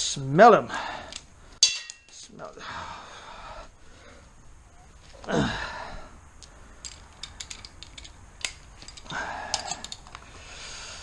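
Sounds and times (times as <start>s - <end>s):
person grunting: 5.2s - 6.1s
metal parts and tools clinking: 6.4s - 10.2s.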